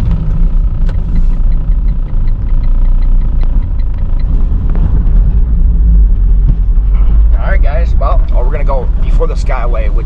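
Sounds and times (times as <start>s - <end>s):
road and engine rumble in car: 0.0s - 10.0s
faint rapid ticking: 0.2s - 5.2s.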